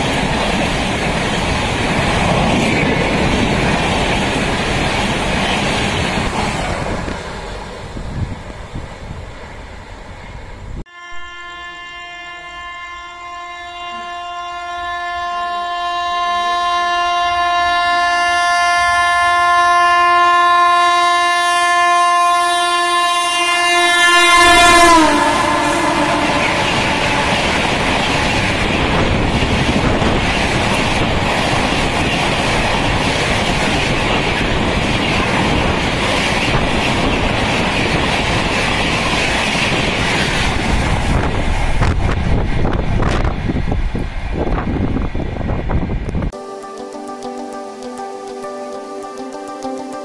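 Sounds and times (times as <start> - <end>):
train coaches rushing and clacking: 0.0 - 10.7, 24.2 - 46.3
train horn blast: 10.8 - 30.2.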